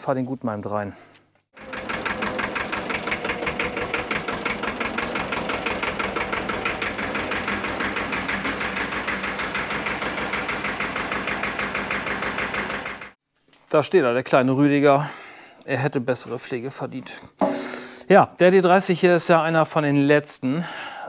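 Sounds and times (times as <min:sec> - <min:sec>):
tractor diesel engine running: 0:01.6 - 0:13.2.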